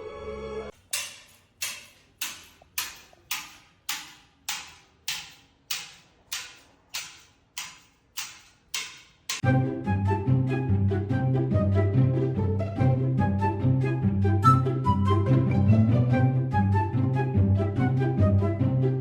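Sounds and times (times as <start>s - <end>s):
music: 0.0s - 0.8s, 9.4s - 19.0s.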